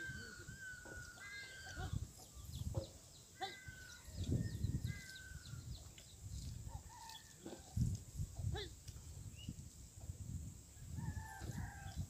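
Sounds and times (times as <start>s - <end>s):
birds calling: 0.0s - 7.8s.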